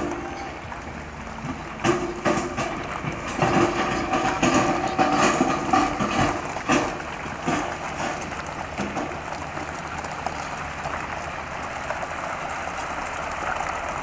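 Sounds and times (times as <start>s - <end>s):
metallic clanks and rattles: 0.0s - 10.6s
dump truck engine running: 0.0s - 14.0s.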